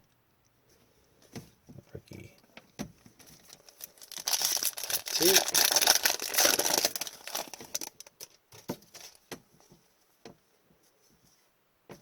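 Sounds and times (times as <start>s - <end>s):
foil wrapper crinkling: 3.3s - 9.2s.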